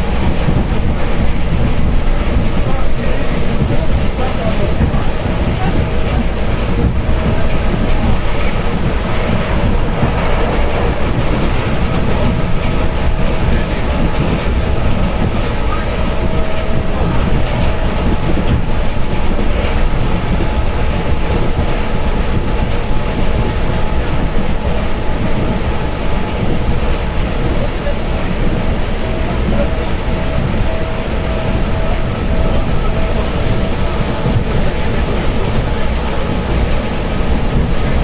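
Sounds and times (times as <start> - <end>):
train wheels rumbling on rails: 0.0 - 38.0
faint steady whine: 14.6 - 38.0.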